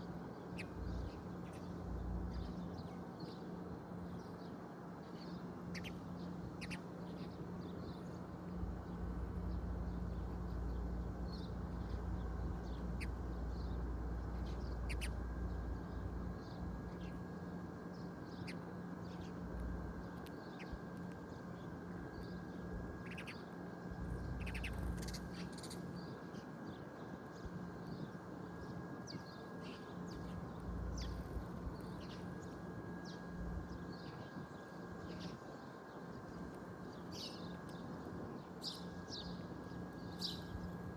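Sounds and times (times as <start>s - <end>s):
birds chirping: 4.0s - 21.4s, 22.2s - 26.2s, 29.1s - 34.4s, 38.6s - 40.9s.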